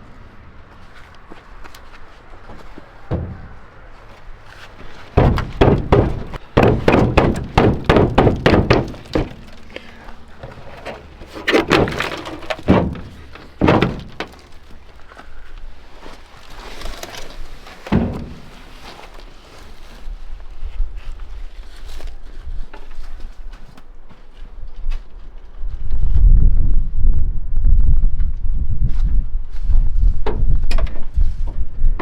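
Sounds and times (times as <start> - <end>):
heavy knocks on metal parts: 3.1 - 3.8, 5.2 - 14.8, 17.9 - 18.7
knocks and thunks: 3.1 - 3.8, 5.1 - 14.9, 17.8 - 18.9.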